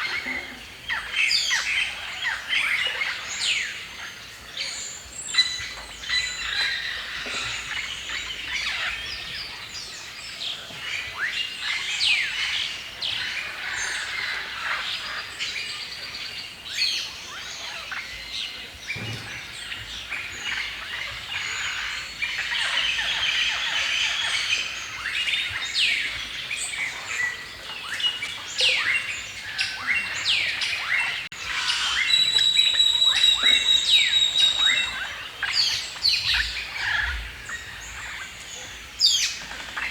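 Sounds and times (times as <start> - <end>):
songbirds chirping and singing: 0.0 - 39.9
bird high whistle: 31.7 - 35.0.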